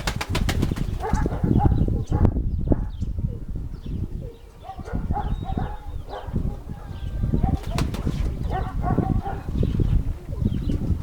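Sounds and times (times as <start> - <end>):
wing flap: 0.0 - 1.3, 7.6 - 8.4
wind rumbling on microphone: 0.0 - 11.0
pigeons cooing: 0.7 - 11.0.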